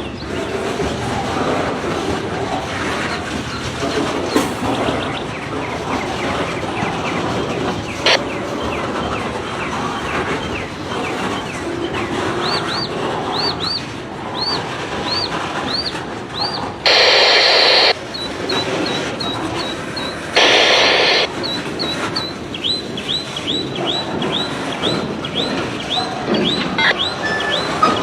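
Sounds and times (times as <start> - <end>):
high squealing chirps: 16.9 - 18.0, 20.4 - 21.3.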